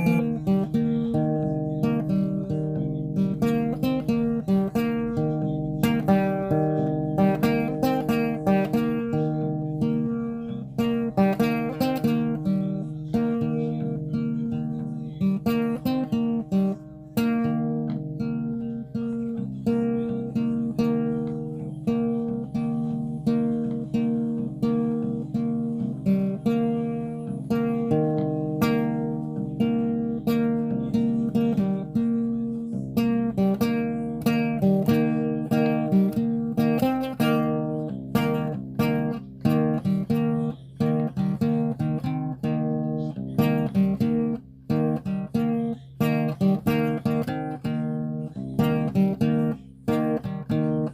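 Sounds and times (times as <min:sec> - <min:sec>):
acoustic guitar playing: 0:00.0 - 0:50.9.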